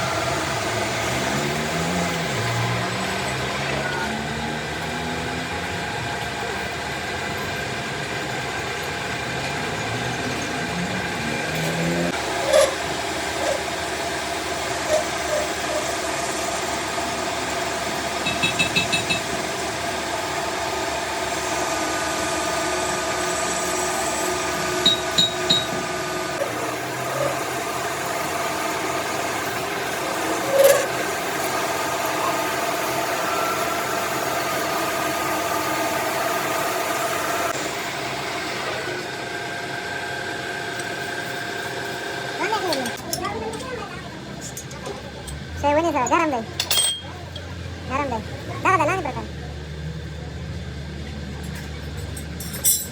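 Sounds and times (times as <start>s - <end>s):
machine tool humming whine: 0.0s - 43.0s
metal clinks: 46.6s - 47.2s, 51.9s - 52.9s.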